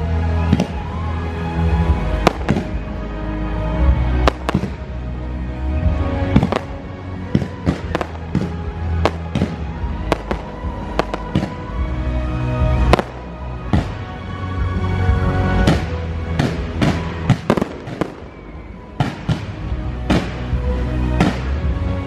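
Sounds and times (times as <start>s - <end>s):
loud show music: 0.0s - 22.0s
fireworks bangs: 0.4s - 1.1s, 1.9s - 3.0s, 4.1s - 5.0s, 6.2s - 11.8s, 12.7s - 14.1s, 15.6s - 21.7s.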